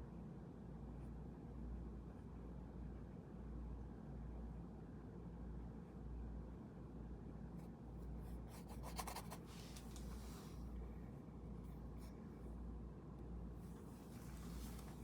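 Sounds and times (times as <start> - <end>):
paintbrush strokes on paper: 13.8 - 15.0.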